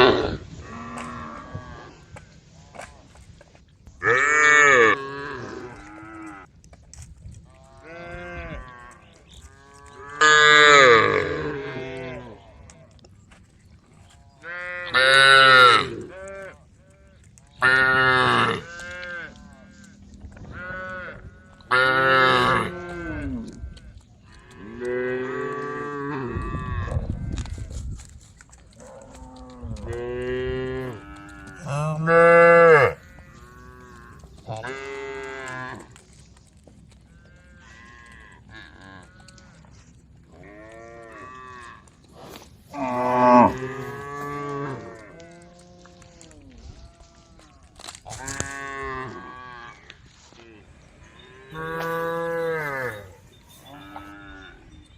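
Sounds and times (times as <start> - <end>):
cows mooing: 4.0 - 6.5, 7.6 - 12.4, 14.4 - 16.6, 17.6 - 23.6, 28.8 - 36.2, 37.1 - 42.0, 42.7 - 50.3, 51.1 - 54.8.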